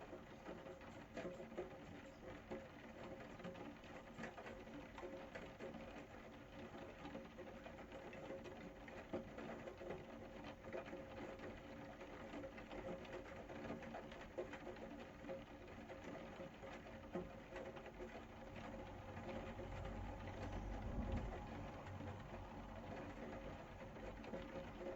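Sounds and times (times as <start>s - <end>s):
rain pattering: 0.0s - 24.9s
faint steady hum: 17.1s - 24.9s.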